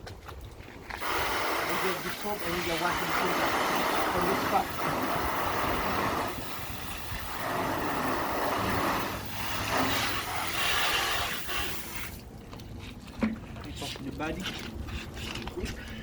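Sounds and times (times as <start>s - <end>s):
rushing hissing water spray: 1.0s - 12.2s.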